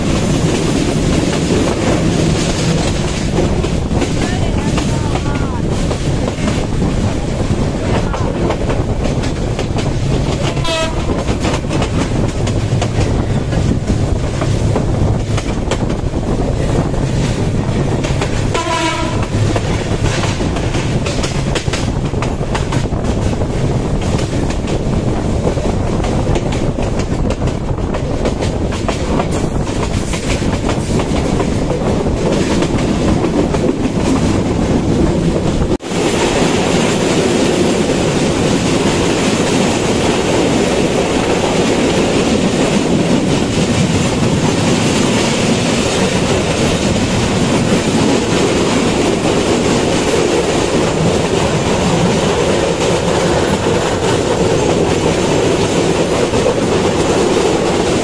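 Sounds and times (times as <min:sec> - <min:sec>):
train rumble: 0:00.0 - 0:58.0
wheel clatter over rail joints: 0:00.0 - 0:58.0
wind rushing: 0:00.0 - 0:58.0
wavering train horn: 0:10.4 - 0:11.3, 0:18.5 - 0:19.4.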